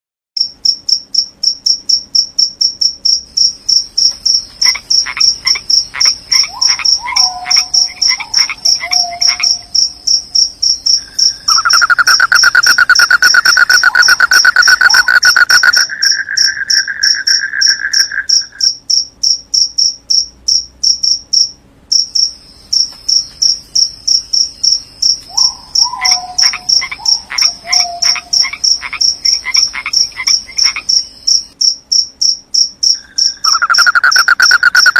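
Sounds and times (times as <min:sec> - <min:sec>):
crickets chirping: 0:00.4 - 0:34.9
frogs calling: 0:01.4 - 0:34.9
low rapid trill: 0:11.2 - 0:18.7.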